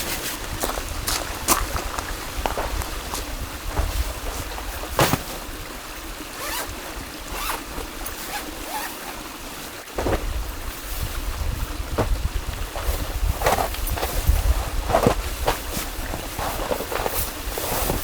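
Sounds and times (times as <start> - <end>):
wind buffeting microphone: 0.0 - 5.8, 10.0 - 18.0
mountain stream rushing: 0.0 - 18.0.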